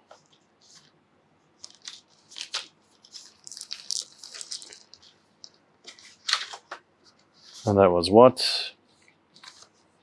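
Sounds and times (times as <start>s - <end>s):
plastic bag crinkling: 1.6s - 6.7s.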